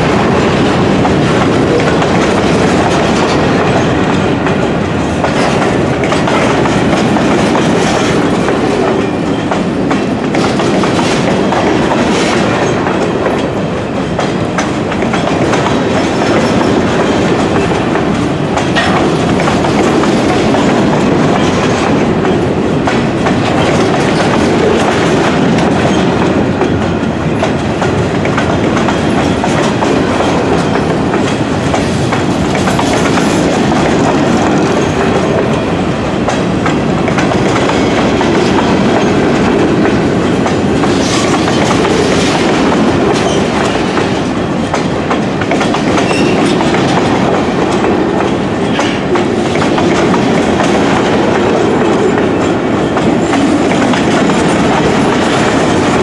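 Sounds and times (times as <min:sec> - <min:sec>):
freight train wheels rumbling: 0:00.0 - 0:56.0
wheels clicking over rail joints: 0:00.4 - 0:56.0.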